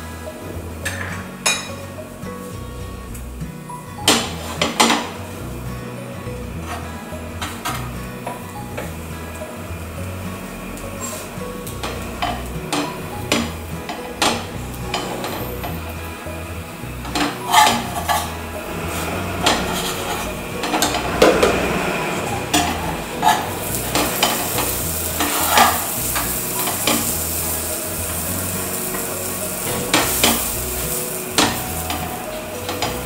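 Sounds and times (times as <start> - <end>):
bread sizzling on a griddle: 4.0 - 33.0
metal spatula scraping and tapping: 17.0 - 21.6, 22.2 - 27.2.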